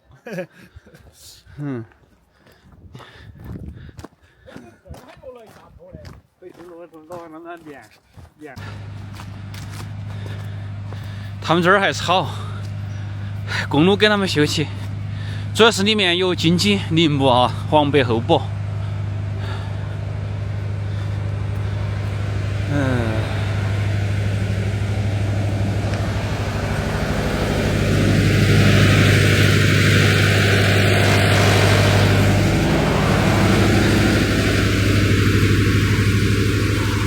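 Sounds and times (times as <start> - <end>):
vehicle engine humming: 8.6 - 37.0.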